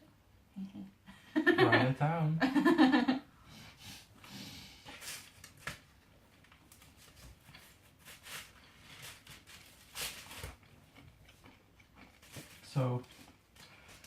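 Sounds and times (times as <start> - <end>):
people chewing food: 3.6 - 14.0.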